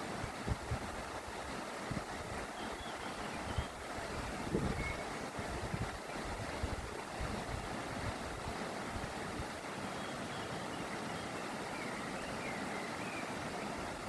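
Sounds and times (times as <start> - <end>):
mountain torrent rushing: 0.0 - 14.0
faint bird chirps: 2.5 - 3.8, 4.7 - 5.1, 9.9 - 13.7.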